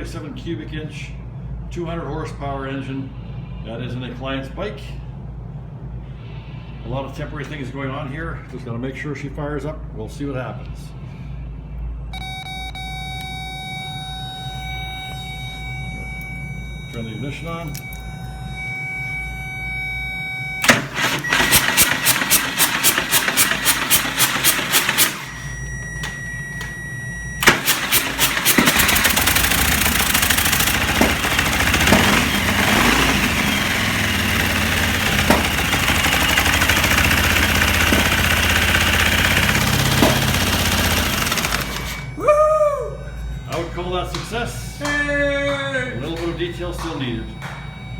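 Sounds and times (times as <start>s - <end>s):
throttle blips: 12.2s - 47.9s
starter motor cranking: 15.3s - 26.3s, 27.2s - 42.2s
motorcycle engine running: 20.7s - 25.4s, 27.4s - 42.2s.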